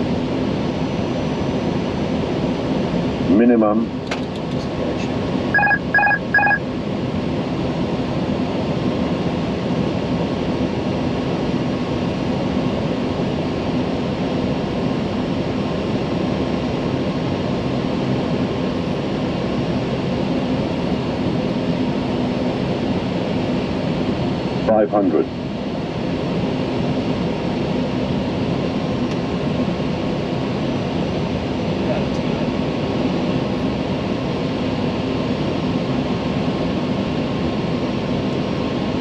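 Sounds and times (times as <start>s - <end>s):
cockpit airflow and engine noise: 0.0s - 39.0s
short electronic alert beeps: 5.6s - 6.6s.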